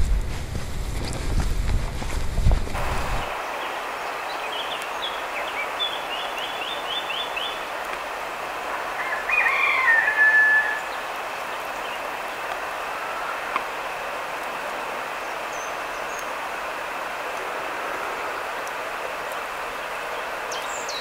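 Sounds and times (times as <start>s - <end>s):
background hiss: 0.0s - 21.0s
birds singing: 3.2s - 7.9s, 8.7s - 13.4s, 15.2s - 16.4s, 20.1s - 21.0s.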